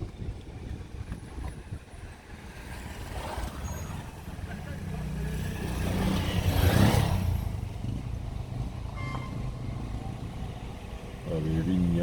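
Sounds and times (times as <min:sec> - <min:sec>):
motor vehicle passing: 0:02.3 - 0:11.3.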